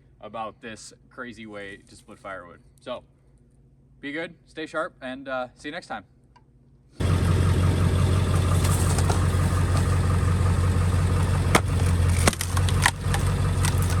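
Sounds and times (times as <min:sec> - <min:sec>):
diesel truck engine idling: 0:07.0 - 0:14.0
sharp cracks: 0:08.3 - 0:14.0.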